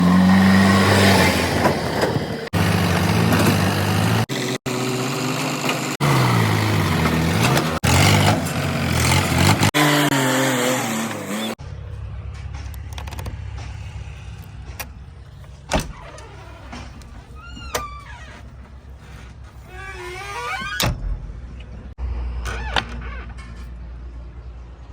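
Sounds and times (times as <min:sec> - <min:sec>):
heavy machinery engines revving: 0:00.0 - 0:11.6.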